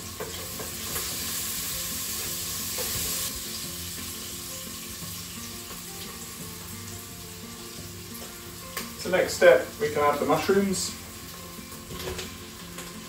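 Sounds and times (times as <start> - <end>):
onions sizzling in a pot: 0.0 - 13.0.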